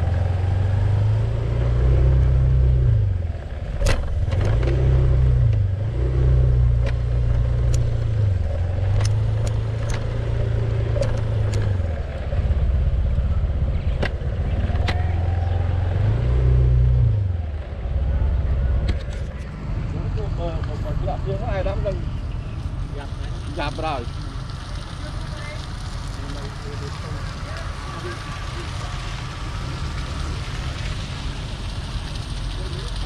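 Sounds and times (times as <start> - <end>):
vehicle engine revving: 0.0 - 33.0
sharp clicks and knocks: 3.8 - 4.8, 6.8 - 8.2, 8.8 - 12.3, 13.9 - 15.2, 18.8 - 19.5.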